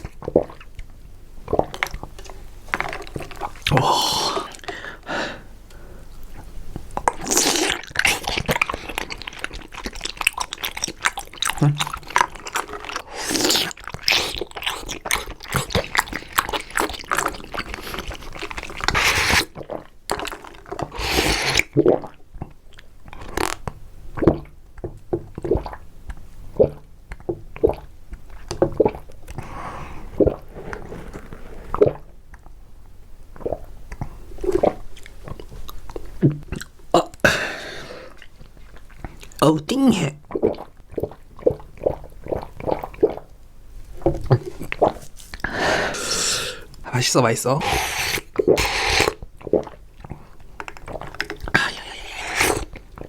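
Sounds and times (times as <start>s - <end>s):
chewing and crunching: 1.5s - 3.8s, 6.2s - 26.2s, 47.9s - 53.0s.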